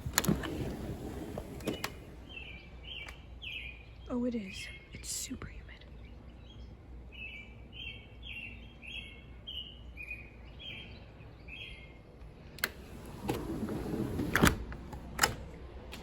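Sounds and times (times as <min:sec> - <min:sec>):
bird chirping: 0:00.4 - 0:12.2.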